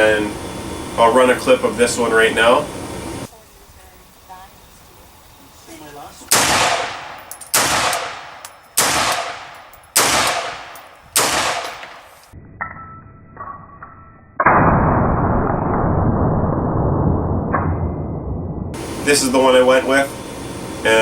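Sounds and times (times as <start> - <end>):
rifle shots with echoing tail: 6.3 - 12.3
loud steady rushing noise: 18.7 - 21.0.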